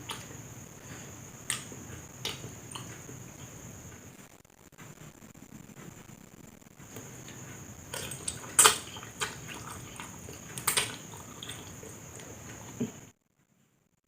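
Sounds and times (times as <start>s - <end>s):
wet chewing of noodles: 0.0s - 3.6s, 6.8s - 13.1s.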